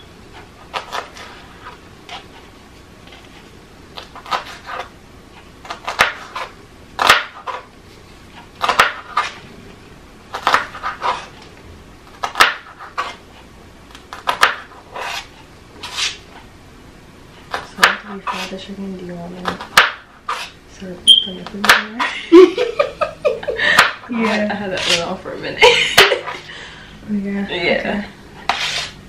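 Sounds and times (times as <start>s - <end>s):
knife cutting vegetables on board: 0.4s - 2.5s, 4.0s - 4.9s, 5.6s - 7.7s, 8.4s - 9.4s, 10.3s - 11.4s, 12.1s - 13.2s, 14.1s - 16.4s, 17.4s - 18.6s, 19.4s - 20.6s, 21.4s - 22.1s, 23.8s - 25.2s, 28.4s - 29.0s.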